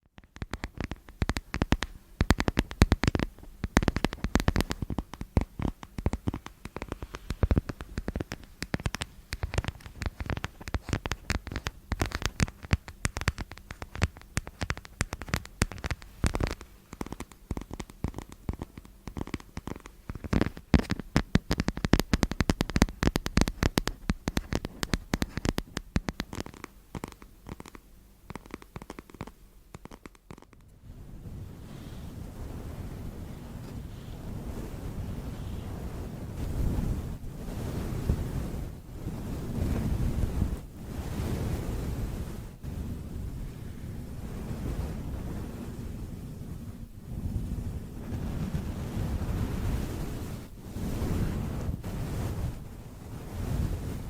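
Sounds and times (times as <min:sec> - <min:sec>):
tapping and scratching: 0:00.0 - 0:30.7.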